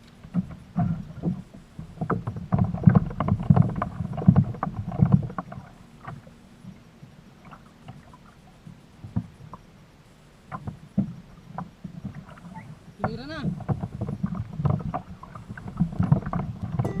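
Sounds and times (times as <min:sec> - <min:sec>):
knocks and splashes against hull: 0:00.1 - 0:06.3, 0:10.5 - 0:16.9.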